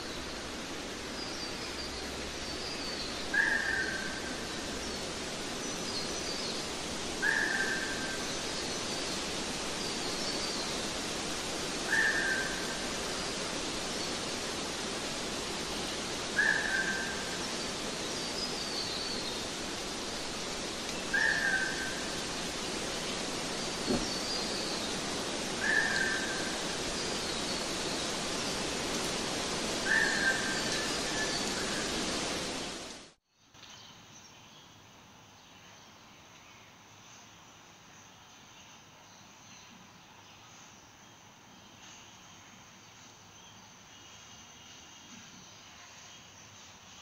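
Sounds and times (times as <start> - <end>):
steady rushing hiss: 0.0 - 33.2.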